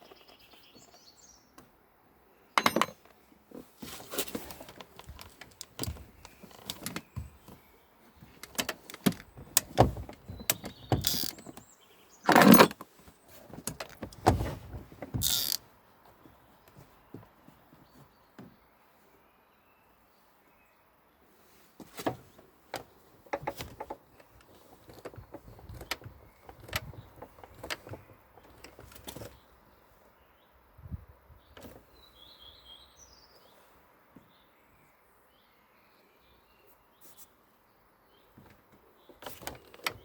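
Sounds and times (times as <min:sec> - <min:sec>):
bird chirping: 0:00.0 - 0:01.6, 0:05.9 - 0:12.8, 0:31.3 - 0:33.6.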